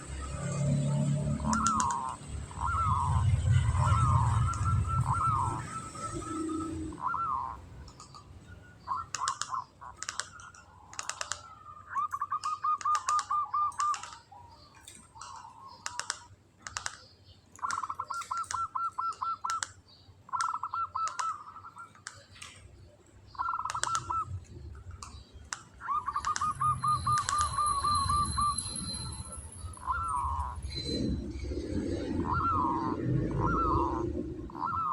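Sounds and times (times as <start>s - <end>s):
dove singing stuttering trill: 0.0s - 34.9s
sharp clicks: 1.4s - 2.2s, 9.1s - 11.5s, 12.1s - 19.8s, 20.4s - 22.7s, 23.4s - 27.6s.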